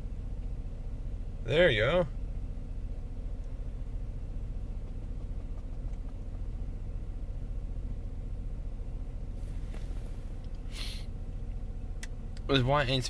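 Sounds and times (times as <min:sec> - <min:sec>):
car engine idling: 0:00.0 - 0:13.0
brief hiss: 0:09.4 - 0:11.1.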